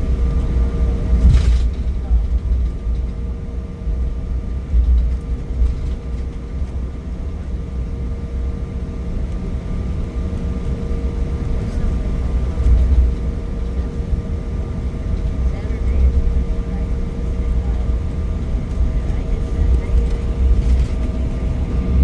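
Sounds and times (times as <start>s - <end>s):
jet cabin rumble and engine whine: 0.0s - 22.0s.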